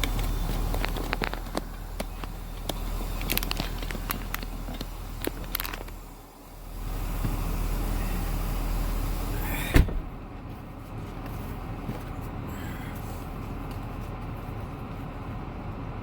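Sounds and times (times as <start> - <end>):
car door shutting: 9.0 - 10.2.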